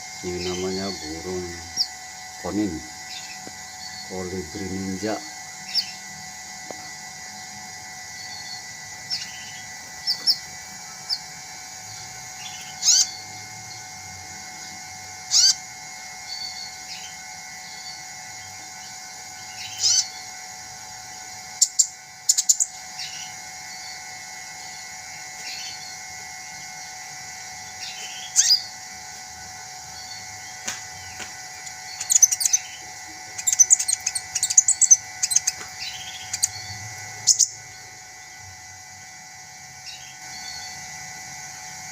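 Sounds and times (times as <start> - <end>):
bird chirping and twittering: 0.0 - 6.0, 8.2 - 11.3, 11.9 - 13.9, 15.3 - 15.6, 16.2 - 18.1, 18.8 - 20.3, 21.6 - 24.0, 27.7 - 28.8, 29.9 - 38.4, 39.8 - 40.9
faint steady hum: 0.0 - 41.9.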